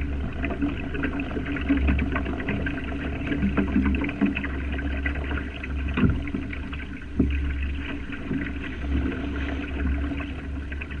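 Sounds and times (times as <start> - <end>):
water lapping against boat hull: 0.0 - 11.0
small clicks and knocks: 5.9 - 6.6.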